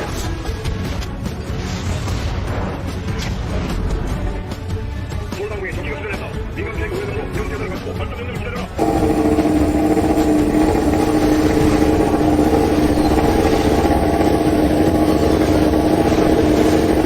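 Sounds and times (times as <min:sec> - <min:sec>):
motorcycle engine running: 0:08.8 - 0:17.0.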